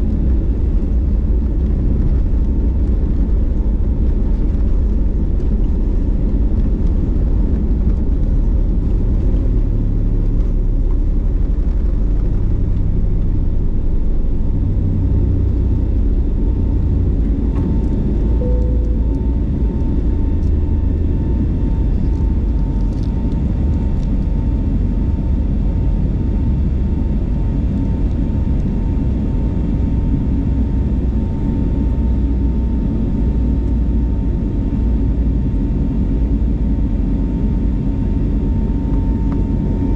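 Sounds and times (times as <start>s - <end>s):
aircraft engine cabin rumble: 0.0s - 39.9s
faint steady tone: 18.2s - 21.8s.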